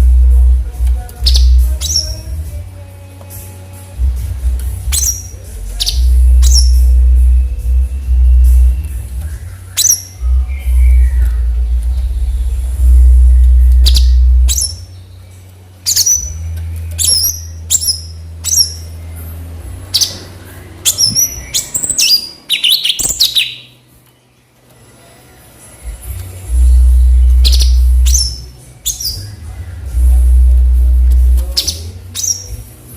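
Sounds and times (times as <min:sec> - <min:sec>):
loud low hum: 0:00.0 - 0:23.8, 0:25.7 - 0:32.9
songbird whistled calls: 0:04.9 - 0:06.9, 0:09.3 - 0:11.5, 0:15.9 - 0:19.0, 0:20.8 - 0:23.8, 0:27.2 - 0:29.4.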